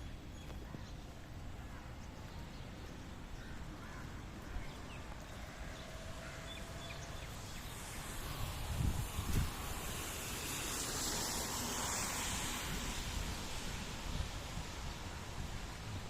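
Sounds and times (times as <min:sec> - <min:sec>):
outdoor background noise: 0:00.0 - 0:16.0
wind buffeting microphone: 0:04.2 - 0:16.0.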